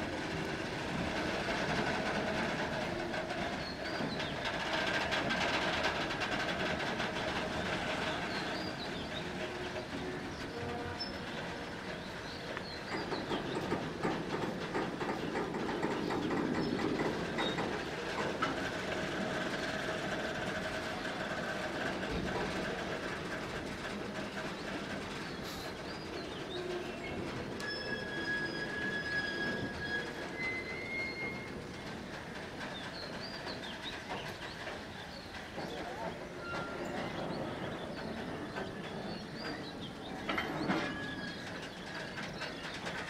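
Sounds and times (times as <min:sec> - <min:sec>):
train wheels clicking over rail joints: 0:00.0 - 0:43.0
high wheel squeal: 0:26.6 - 0:31.6, 0:36.4 - 0:37.1.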